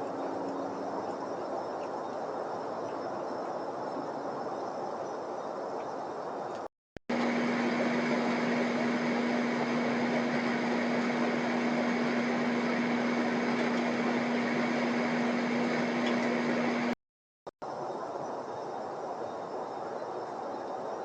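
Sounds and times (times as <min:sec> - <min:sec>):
machine hum: 0:07.1 - 0:17.0.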